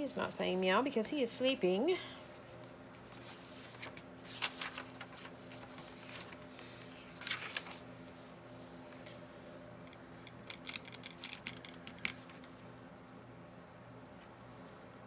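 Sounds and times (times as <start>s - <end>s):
faint steady hum: 0.0s - 15.0s
paper rustling: 2.4s - 8.2s.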